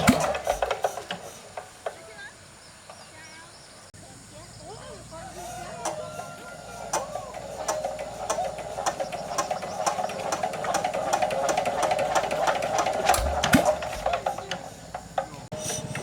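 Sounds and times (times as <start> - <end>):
small motor tool running: 0.0 - 2.0, 5.1 - 16.0
sharp clicks: 6.9 - 14.6
low thump: 13.2 - 14.1.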